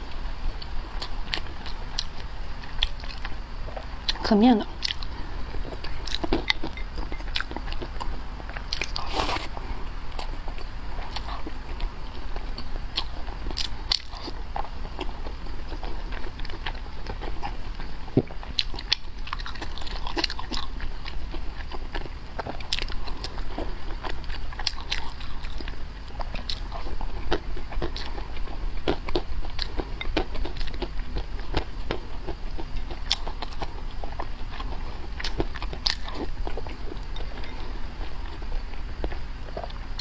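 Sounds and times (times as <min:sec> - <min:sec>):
person chewing crunchy food: 0:00.0 - 0:40.0.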